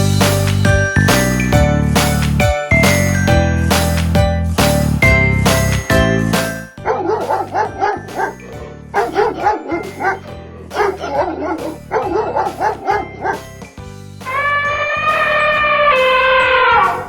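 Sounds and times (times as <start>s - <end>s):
dog barking yappy: 6.8s - 13.5s.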